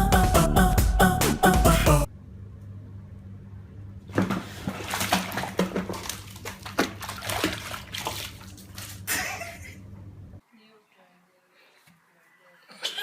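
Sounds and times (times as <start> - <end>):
low electrical hum: 2.0 - 13.0
wet splashing and slapping: 4.1 - 9.4.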